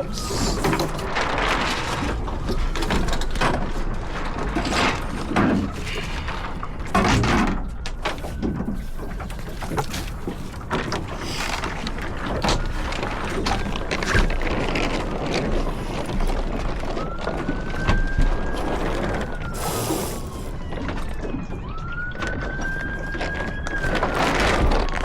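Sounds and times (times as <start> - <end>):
water splashing along hull: 0.0 - 25.0.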